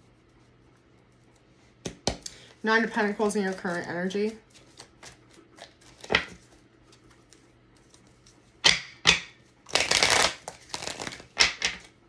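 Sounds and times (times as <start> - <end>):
cards slapping on table: 1.8 - 2.4, 4.7 - 6.4, 8.6 - 11.9
cards shuffling: 1.9 - 8.4, 9.1 - 12.0
cards rustling: 2.2 - 8.4, 9.7 - 11.9.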